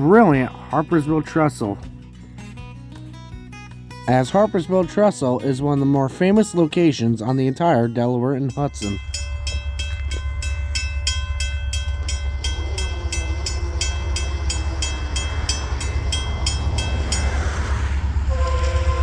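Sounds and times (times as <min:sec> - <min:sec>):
diesel freight train rumbling: 0:00.0 - 0:19.0
crossing bell ringing: 0:06.8 - 0:19.0.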